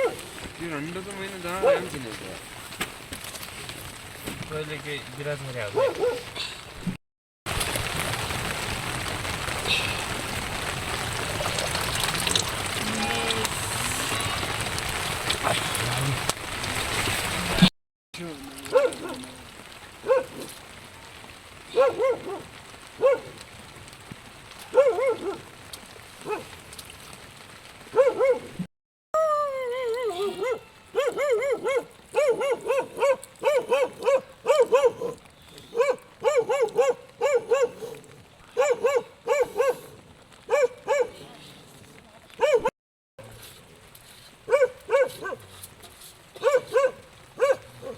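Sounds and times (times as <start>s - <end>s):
young dog yipping and whimpering: 29.7s - 35.2s.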